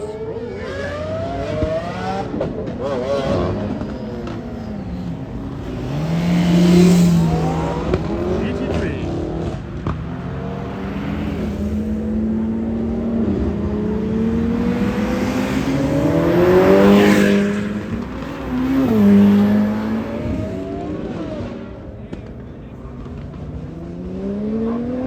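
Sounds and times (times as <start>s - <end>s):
car engines accelerating: 0.0s - 25.0s
car passing at full throttle: 0.0s - 25.0s
engine revving: 0.0s - 25.0s.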